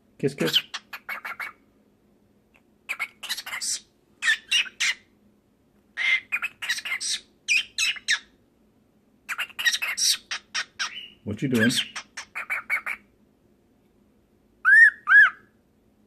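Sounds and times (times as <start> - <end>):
cockatiel chattering and squawking: 0.4 - 1.6, 2.9 - 5.1, 6.0 - 8.3, 9.3 - 13.1, 14.6 - 15.4.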